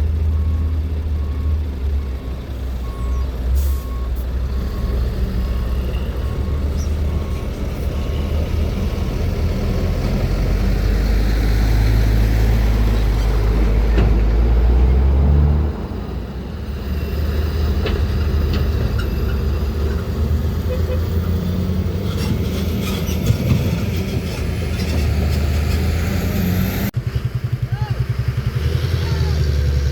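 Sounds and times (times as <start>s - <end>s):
diesel truck engine rumbling: 0.0s - 29.9s
truck reversing alarm beeping: 0.1s - 9.2s, 15.8s - 21.9s.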